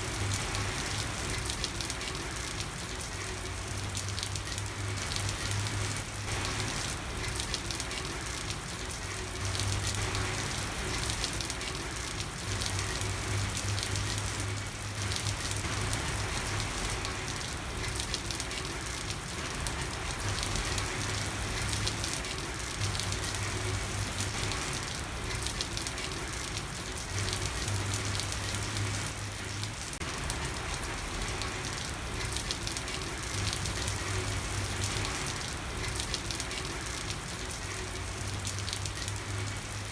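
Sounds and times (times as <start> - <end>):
rain pattering on street: 0.0 - 39.9.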